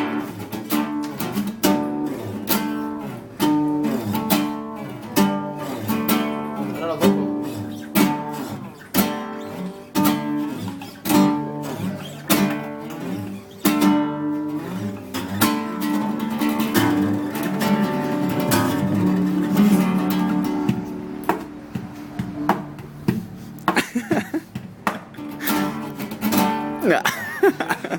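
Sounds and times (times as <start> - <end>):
acoustic guitar duet: 0.0 - 27.9.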